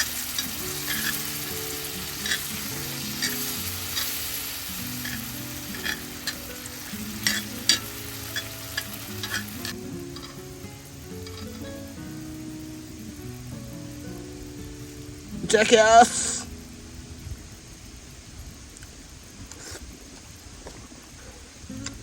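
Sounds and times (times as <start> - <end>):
utensil scraping and clicking: 0.0 - 2.6, 3.2 - 4.2
food sizzling in frying pan: 0.0 - 20.2.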